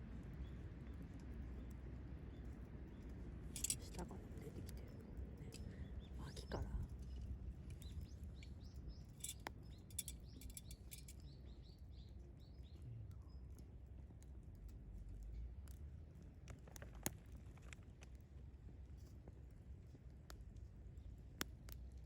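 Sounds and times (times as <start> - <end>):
small bird chirping: 2.3 - 13.4.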